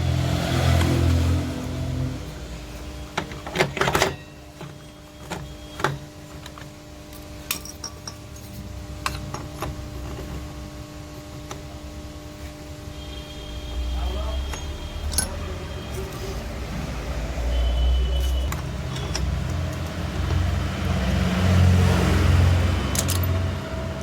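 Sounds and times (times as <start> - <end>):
steady hum: 0.0 - 24.0
metal tools clicking and knocking: 3.2 - 10.3, 14.4 - 16.4, 18.2 - 20.7, 22.9 - 23.5.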